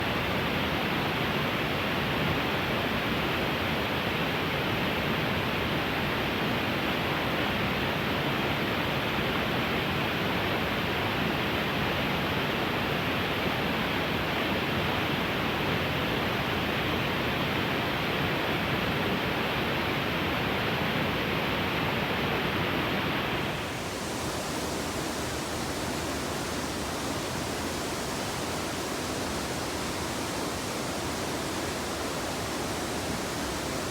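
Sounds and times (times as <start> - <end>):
river rapids rushing: 23.4 - 33.9.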